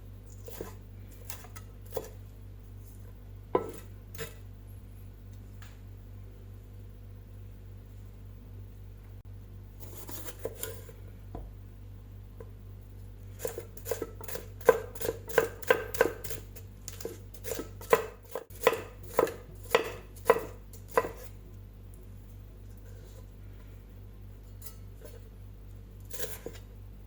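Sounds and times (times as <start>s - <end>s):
knife chopping on cutting board: 13.4s - 21.3s.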